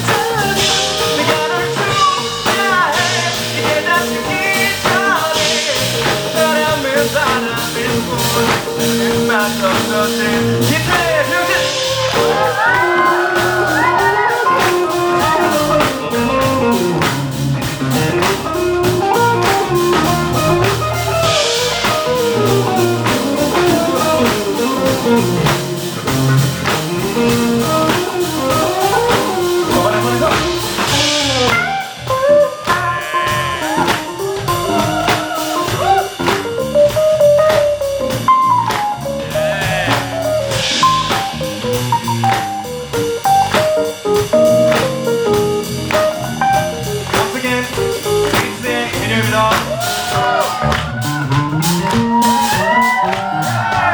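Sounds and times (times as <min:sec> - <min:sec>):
bass guitar: 0:00.0 - 0:53.9
drum beat: 0:00.0 - 0:53.9
guitar solo with bent notes: 0:11.4 - 0:37.4, 0:50.1 - 0:53.9.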